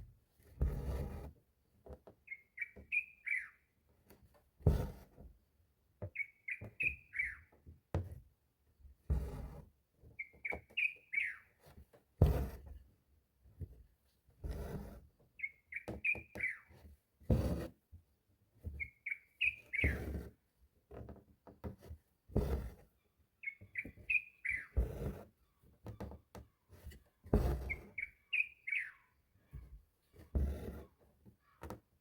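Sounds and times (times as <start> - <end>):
bird chirping: 2.3 - 3.6, 6.2 - 7.5, 10.2 - 11.5, 15.4 - 16.7, 18.8 - 20.0, 23.4 - 24.8, 27.7 - 29.6.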